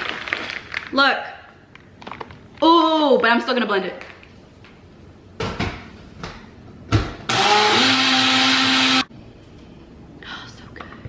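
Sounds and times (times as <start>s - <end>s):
blender motor blending ice: 7.3s - 9.1s.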